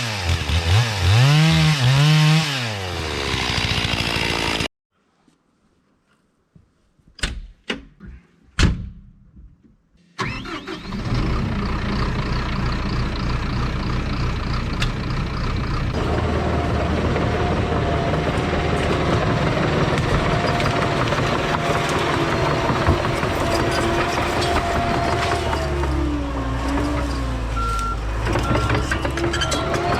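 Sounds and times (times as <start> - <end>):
bulldozer diesel engine running: 10.2 - 29.9.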